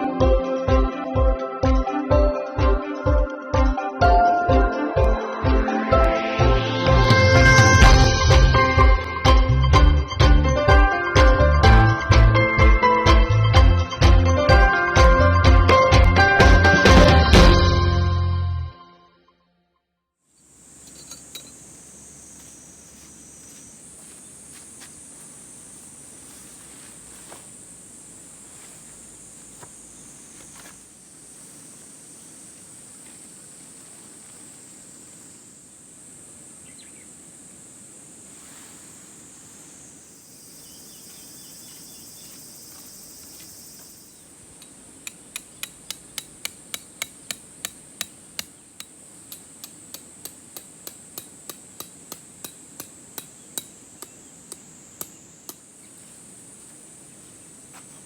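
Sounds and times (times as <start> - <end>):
high insect buzz: 6.1 - 9.6, 20.3 - 58.0
hammer striking: 44.6 - 55.6.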